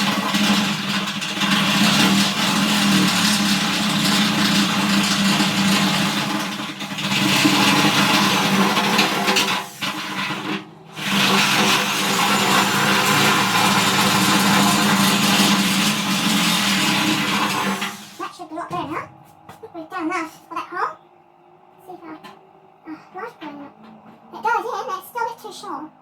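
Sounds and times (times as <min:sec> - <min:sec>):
power drill drilling sheet metal: 0:00.0 - 0:18.4.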